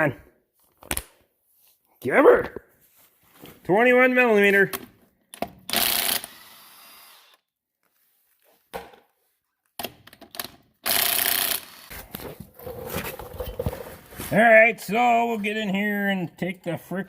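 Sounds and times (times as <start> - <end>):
impact wrench bursts: 5.6 - 7.4, 10.8 - 11.9.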